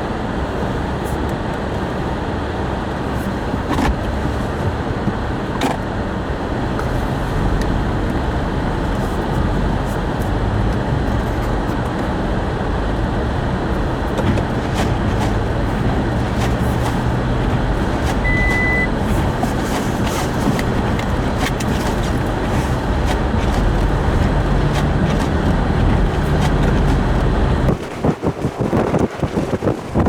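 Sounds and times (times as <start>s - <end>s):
highway traffic noise: 0.0s - 29.6s
wind buffeting microphone: 3.6s - 30.0s
short high beep: 18.2s - 18.9s.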